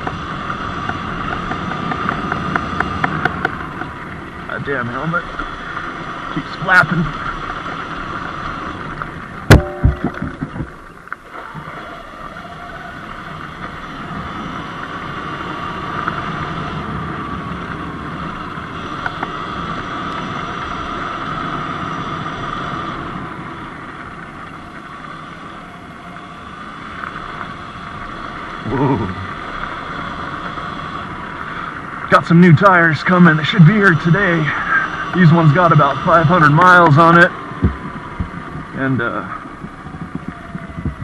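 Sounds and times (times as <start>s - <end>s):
wind and riding noise: 0.0s - 41.0s
loud sharp knock: 9.5s - 10.5s.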